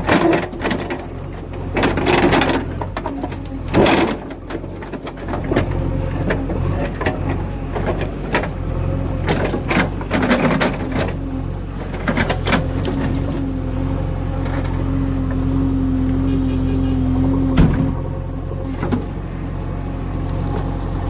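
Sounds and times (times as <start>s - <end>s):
knocks and rattles: 0.0s - 8.6s, 17.6s - 18.2s
heavy diesel engine running: 0.0s - 21.0s.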